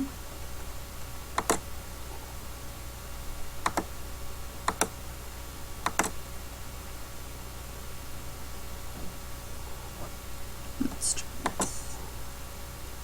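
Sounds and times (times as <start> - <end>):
faint steady low hum: 0.0 - 13.0
computer mouse clicking: 1.4 - 1.6, 3.6 - 3.9, 5.8 - 6.2, 11.0 - 12.0.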